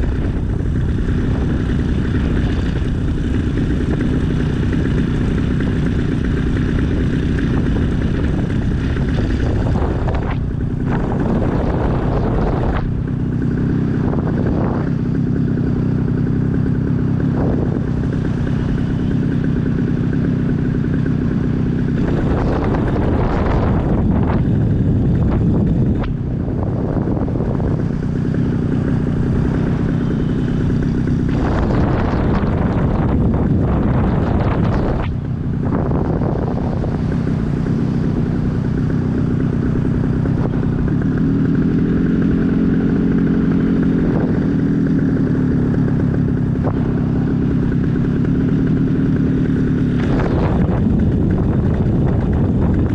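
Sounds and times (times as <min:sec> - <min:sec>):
light aircraft engine idling: 0:00.0 - 0:52.9
wind rushing over microphone: 0:00.0 - 0:52.9.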